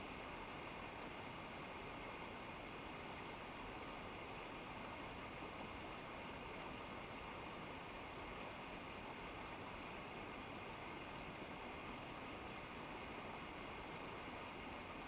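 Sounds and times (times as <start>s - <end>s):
flowing river water rushing: 0.0s - 15.0s.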